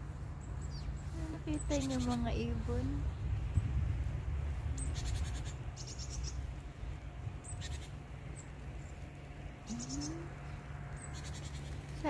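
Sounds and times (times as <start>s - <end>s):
birds rattling chatter: 0.0s - 3.7s, 4.7s - 12.0s
steady low rumble: 0.0s - 12.0s.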